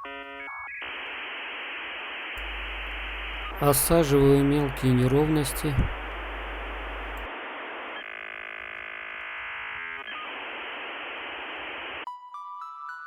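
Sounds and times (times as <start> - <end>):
steady hiss: 0.9 - 8.0
humming tones: 0.9 - 12.0.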